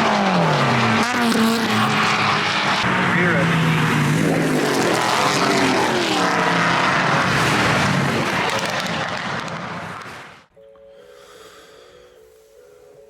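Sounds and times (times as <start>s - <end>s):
race car engine running hard: 0.0s - 10.0s.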